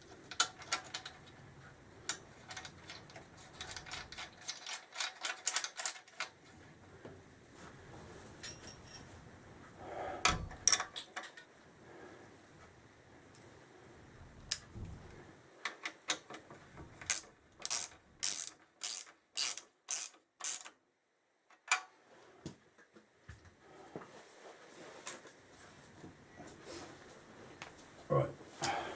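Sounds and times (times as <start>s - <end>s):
socket ratchet wrench clicking: 17.1s - 20.7s.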